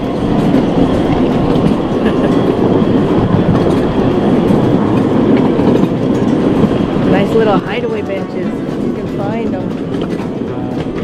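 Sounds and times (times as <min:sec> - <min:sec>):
small train engine and wheels running: 0:00.0 - 0:11.0.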